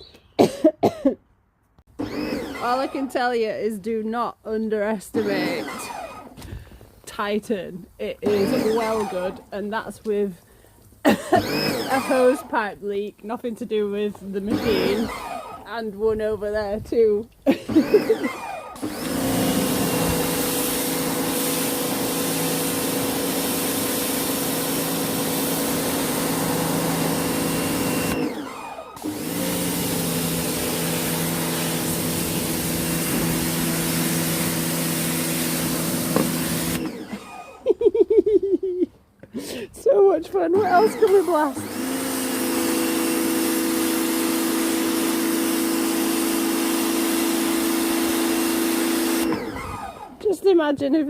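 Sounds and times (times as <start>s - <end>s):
pressure washer motor humming: 1.9s - 38.1s, 40.3s - 50.7s
water jet hissing: 5.2s - 12.7s, 17.8s - 37.2s.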